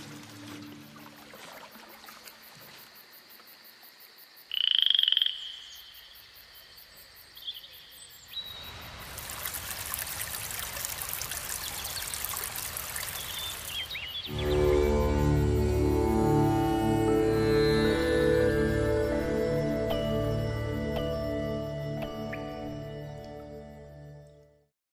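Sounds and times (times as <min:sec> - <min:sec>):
flowing water rushing: 0:00.0 - 0:02.8, 0:08.8 - 0:23.4
faint nature ambience: 0:00.0 - 0:24.6
frog croaking: 0:04.5 - 0:06.3.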